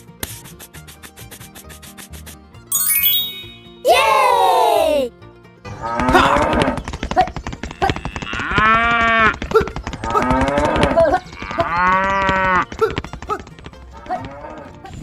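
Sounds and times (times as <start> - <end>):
cow mooing: 7.7 - 9.3, 10.1 - 12.6.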